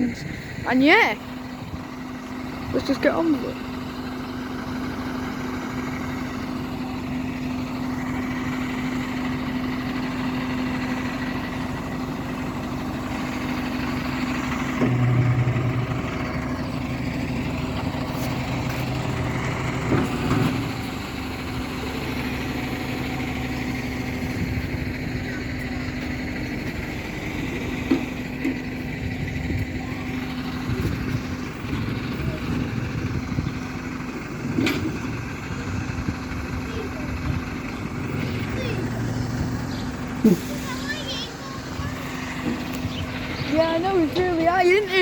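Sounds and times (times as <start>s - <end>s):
truck engine humming: 0.0s - 45.0s
deeper hum: 11.4s - 45.0s.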